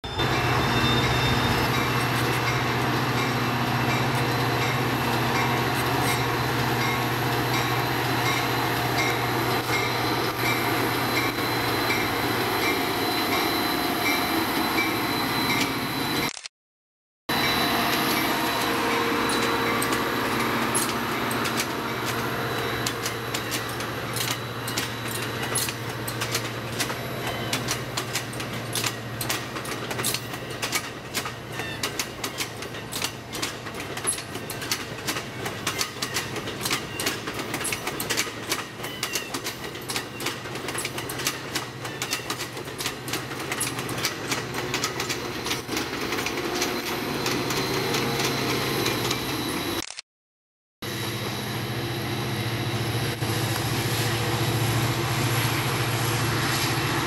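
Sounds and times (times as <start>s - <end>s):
train wheels rumbling on rails: 0.0s - 16.3s, 17.3s - 49.8s, 50.8s - 57.0s
low locomotive engine hum: 0.1s - 16.3s, 17.3s - 49.8s, 50.8s - 57.0s
wheels clicking over rail joints: 17.8s - 49.3s.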